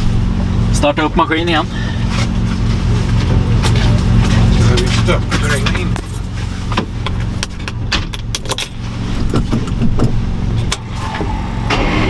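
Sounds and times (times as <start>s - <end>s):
vehicle engine idling: 0.0s - 12.0s
metallic clicks and rattles: 5.3s - 10.8s.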